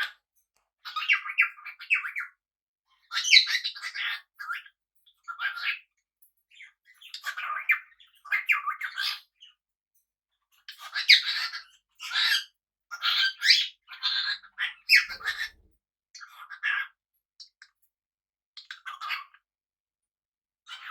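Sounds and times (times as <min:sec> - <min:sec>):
parrots squawking and chattering: 0:03.1 - 0:04.7, 0:05.3 - 0:05.9, 0:07.0 - 0:09.3, 0:10.7 - 0:16.8.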